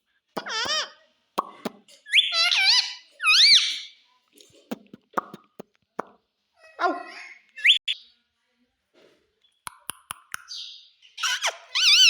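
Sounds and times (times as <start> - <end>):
parrot warbling whistles: 2.1 - 3.8, 7.6 - 8.0, 11.2 - 12.0.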